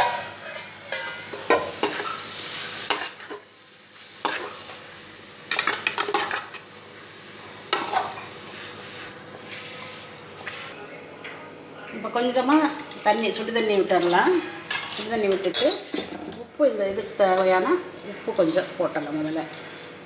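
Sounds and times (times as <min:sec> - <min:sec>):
spatula scraping pan: 0:00.0 - 0:04.8, 0:07.7 - 0:10.8, 0:12.5 - 0:18.9
chicken sizzling in oil: 0:00.0 - 0:10.9.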